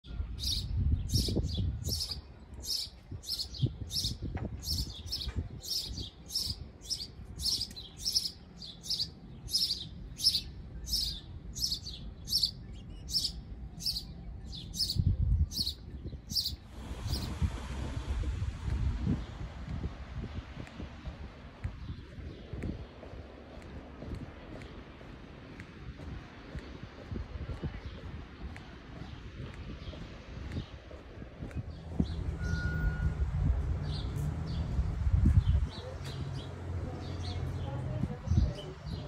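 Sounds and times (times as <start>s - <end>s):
low rumble: 12.8s - 39.0s.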